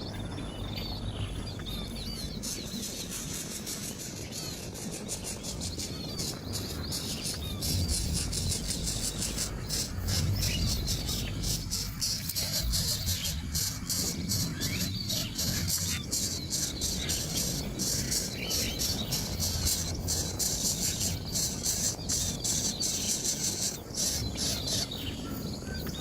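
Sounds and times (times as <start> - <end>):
insects trilling: 0.0 - 26.0
low rumble: 4.6 - 22.6.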